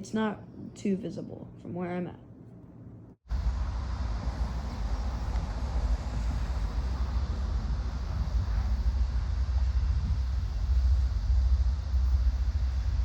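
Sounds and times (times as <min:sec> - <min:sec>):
train rumbling past: 0:03.3 - 0:13.0.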